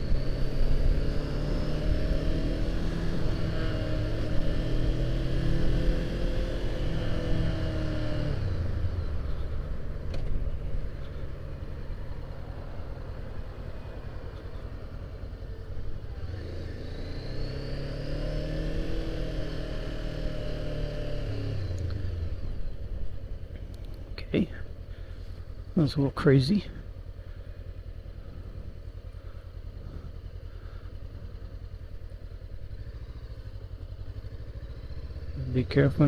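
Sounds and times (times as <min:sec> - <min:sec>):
motorcycle engine running: 0:00.0 - 0:36.0
low wind rumble: 0:21.1 - 0:35.3.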